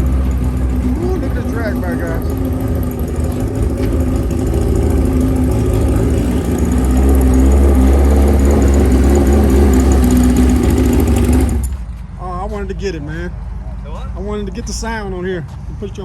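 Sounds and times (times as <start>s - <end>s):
motorcycle engine running loudly: 0.0s - 12.0s.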